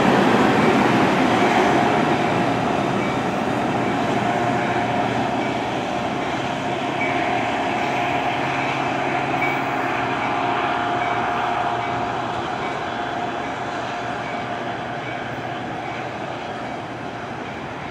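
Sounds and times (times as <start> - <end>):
train wheels on rails: 0.0 - 17.9.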